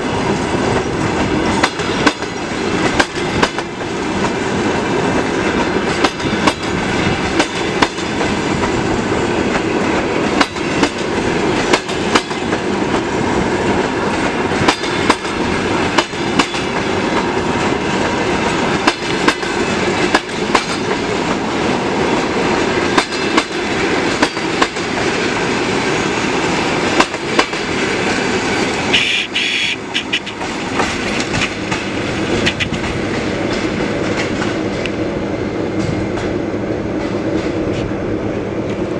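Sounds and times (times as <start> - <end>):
train cars rumbling past: 0.0 - 38.9
wheels clacking over rail joints: 0.2 - 35.1, 35.7 - 37.9.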